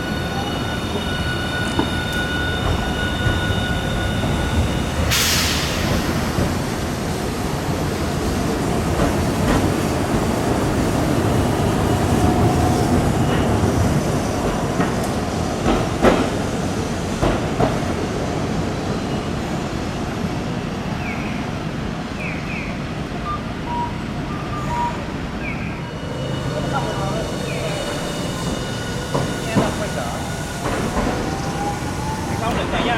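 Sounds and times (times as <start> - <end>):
streetcar rumbling on track: 0.0 - 32.9.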